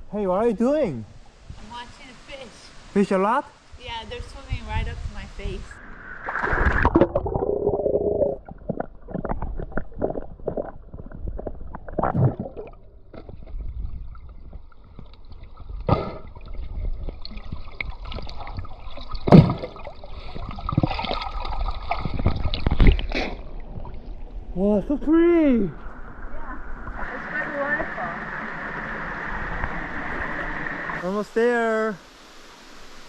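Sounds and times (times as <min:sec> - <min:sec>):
steady high hiss: 0:00.0 - 0:06.3, 0:24.6 - 0:33.0
stream water gurgling: 0:05.8 - 0:33.0
water splashes: 0:05.8 - 0:33.0.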